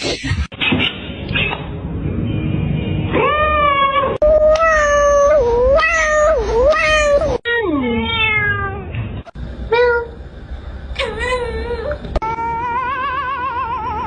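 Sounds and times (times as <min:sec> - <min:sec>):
cats meowing: 0:03.2 - 0:08.9.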